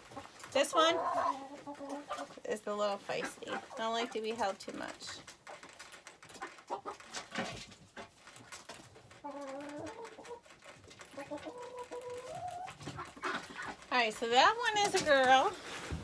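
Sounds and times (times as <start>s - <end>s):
chickens clucking: 0.0s - 16.0s
rustling and knocks: 5.3s - 9.2s, 14.7s - 16.0s.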